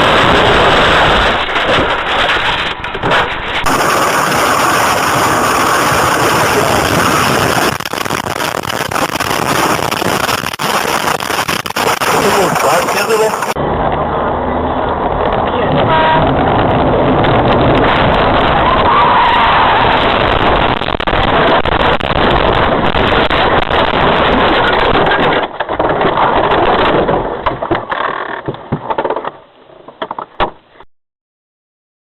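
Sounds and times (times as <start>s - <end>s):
car road and engine noise: 0.0s - 30.8s
knocks and rattles: 23.1s - 30.5s.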